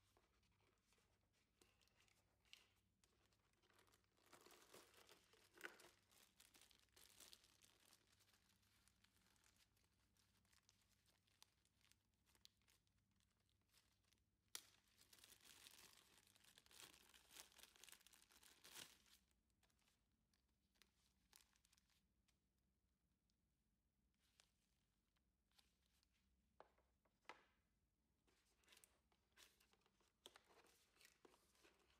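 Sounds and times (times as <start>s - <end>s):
packaging rustling and crinkling: 1.6s - 12.8s, 13.7s - 19.3s, 28.3s - 31.9s.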